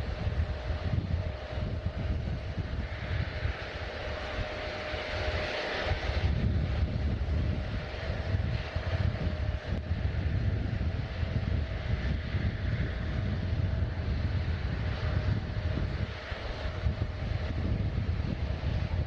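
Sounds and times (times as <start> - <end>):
airliner engines rumbling: 0.0 - 19.0
faint engine whine: 0.0 - 19.0.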